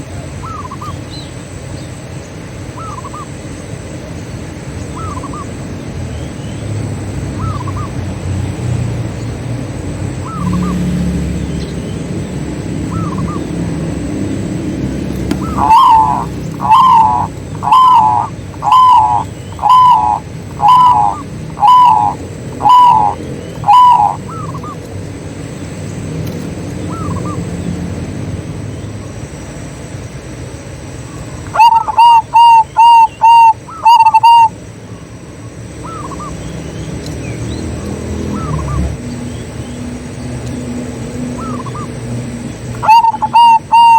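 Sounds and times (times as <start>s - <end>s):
doves cooing: 9.8s - 29.4s, 31.0s - 43.9s.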